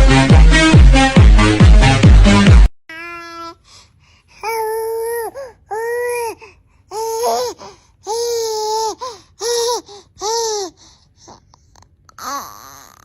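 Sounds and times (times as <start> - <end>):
baby laughing: 6.9 - 10.8, 12.1 - 13.0.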